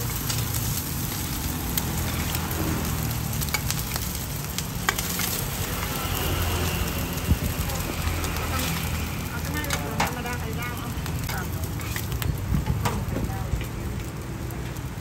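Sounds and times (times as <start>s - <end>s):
food sizzling on griddle: 0.0s - 15.0s.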